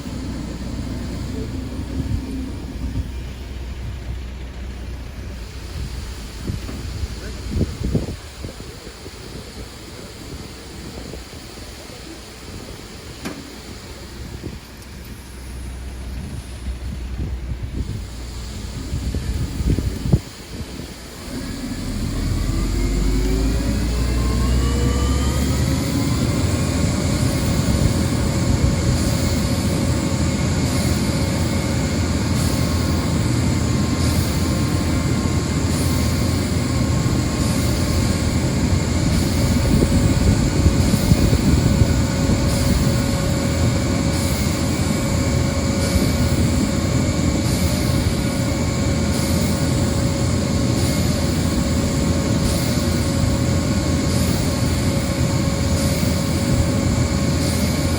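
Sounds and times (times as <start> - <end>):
engine revving at high revs: 21.2 - 57.9.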